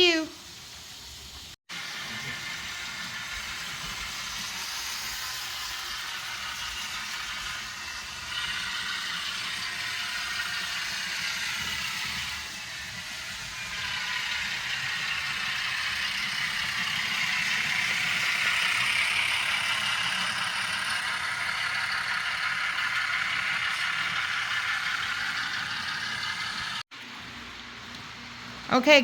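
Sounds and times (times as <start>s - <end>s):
small electric motors whirring: 1.8s - 26.9s
model train wheels rattling on rail: 1.9s - 26.8s.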